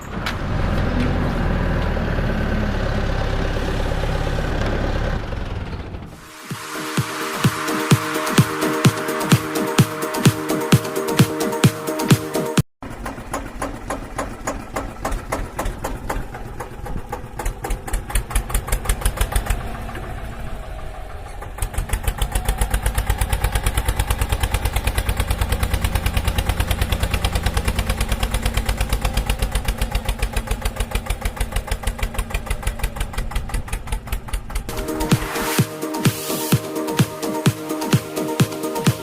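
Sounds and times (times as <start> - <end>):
mini tractor engine chugging: 0.0 - 6.2, 12.8 - 34.7.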